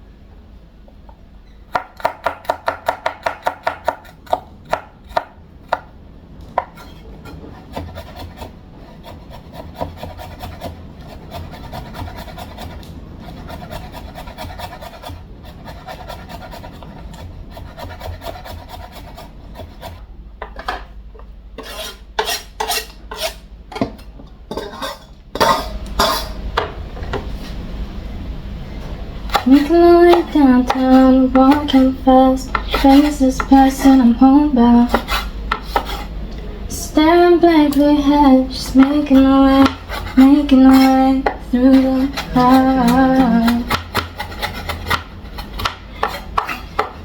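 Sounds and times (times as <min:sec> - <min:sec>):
knife chopping on cutting board: 0:01.7 - 0:05.9, 0:21.6 - 0:24.8, 0:29.3 - 0:31.9, 0:32.5 - 0:33.9, 0:34.9 - 0:36.1, 0:38.8 - 0:47.0
rubbing and scraping on board: 0:06.6 - 0:20.0, 0:21.6 - 0:24.0, 0:34.8 - 0:36.1, 0:38.8 - 0:47.0.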